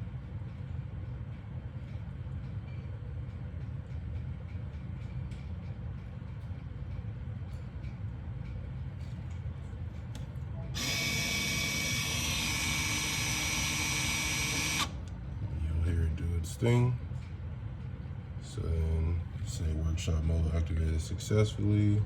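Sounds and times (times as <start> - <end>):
low steady hum: 0.0 - 22.0
brake caliper motors whirring: 10.8 - 15.2.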